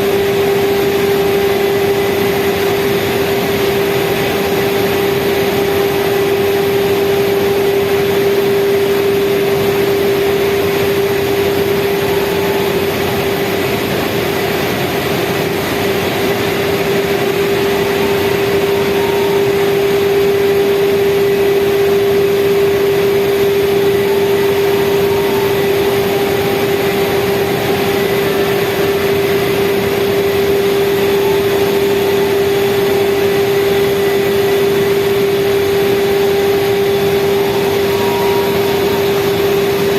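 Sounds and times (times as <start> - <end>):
speedboat engine running: 0.0 - 39.9
water rushing: 8.4 - 39.9.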